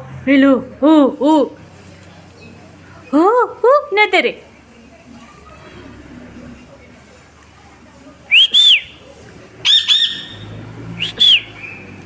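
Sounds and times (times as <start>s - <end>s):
parrot shrill whistled calls: 9.6s - 11.5s.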